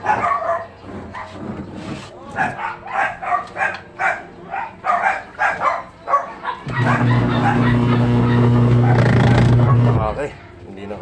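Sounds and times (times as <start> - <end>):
dog barking: 0.0 - 1.4, 2.4 - 10.0
washing machine spin motor humming: 6.6 - 10.4.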